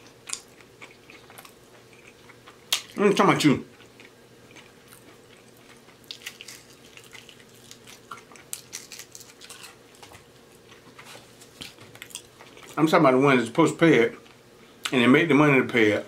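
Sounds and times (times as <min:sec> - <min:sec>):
chicken wing bitten and chewed: 0:03.8 - 0:12.7.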